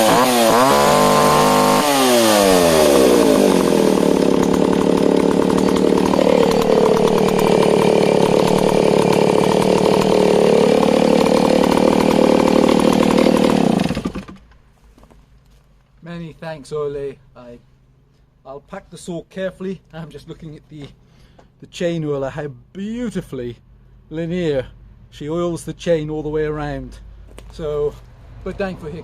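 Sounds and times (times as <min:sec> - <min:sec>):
chainsaw engine running: 0:00.0 - 0:14.4.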